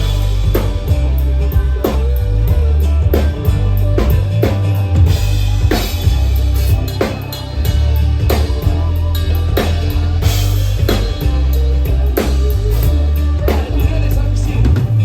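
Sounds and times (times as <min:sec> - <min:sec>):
drum-kit beat: 0:00.0 - 0:15.0
guitar: 0:00.0 - 0:15.0
heavy bass: 0:00.0 - 0:15.0.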